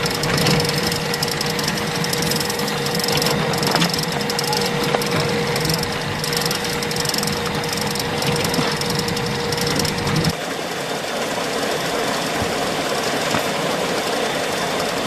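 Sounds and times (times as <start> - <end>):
rapid rattling: 0.0 - 10.4
machine motor running: 0.0 - 15.0
steady hum: 0.0 - 15.0.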